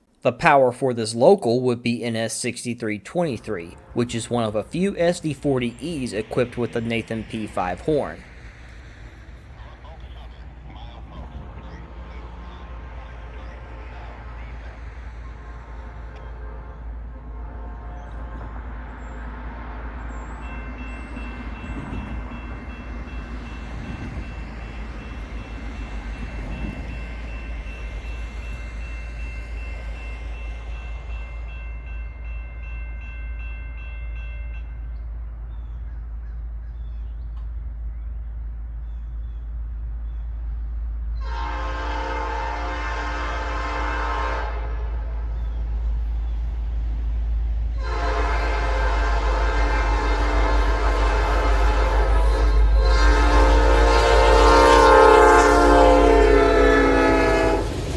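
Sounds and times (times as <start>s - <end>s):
diesel locomotive rumble: 2.9s - 57.9s
locomotive air horn: 9.6s - 20.2s, 41.2s - 45.4s, 47.8s - 57.8s.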